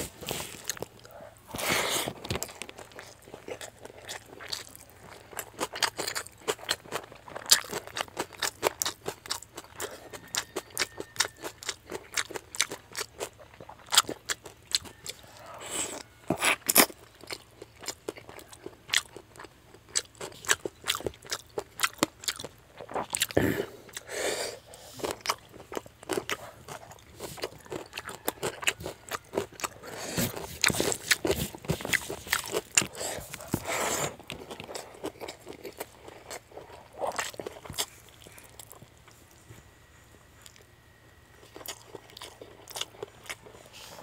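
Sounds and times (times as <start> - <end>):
crunchy chewing: 0.0 - 44.0.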